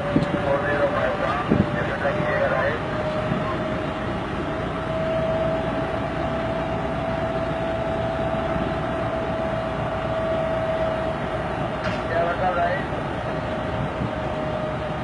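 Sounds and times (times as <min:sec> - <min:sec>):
diesel train engine rumble: 0:00.0 - 0:15.0
steady high whine: 0:00.0 - 0:15.0.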